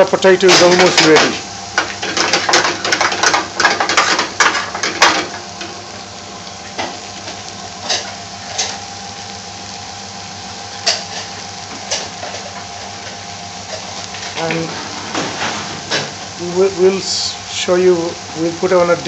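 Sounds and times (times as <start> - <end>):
potatoes sizzling in a pan: 0.0 - 19.0.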